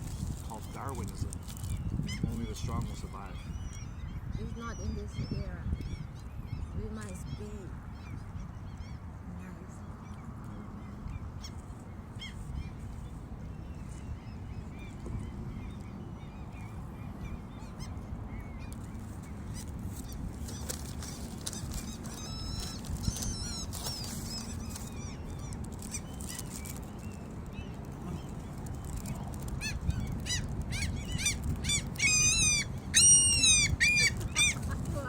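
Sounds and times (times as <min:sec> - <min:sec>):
gulls calling: 0:13.5 - 0:35.0.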